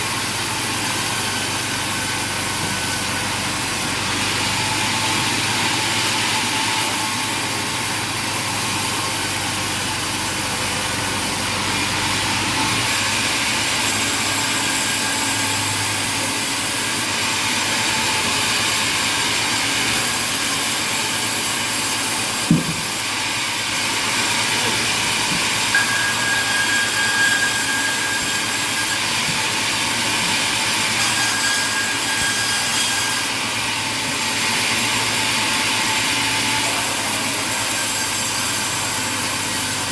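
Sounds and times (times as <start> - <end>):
sawmill machinery running: 0.0 - 39.9
sharp knock: 22.5 - 22.9.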